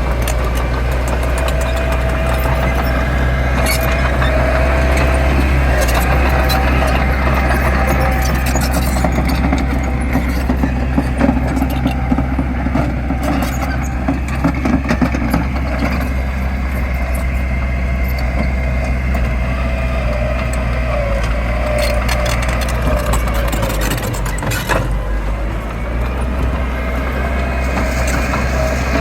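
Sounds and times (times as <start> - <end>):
diesel engine running under load: 0.0 - 29.0.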